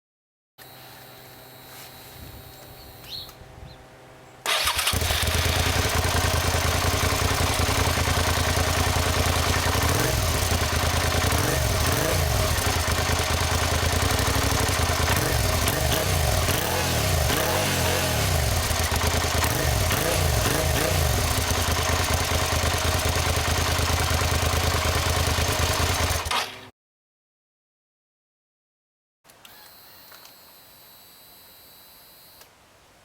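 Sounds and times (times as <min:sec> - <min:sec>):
motorcycle engine idling: 0:04.5 - 0:26.7.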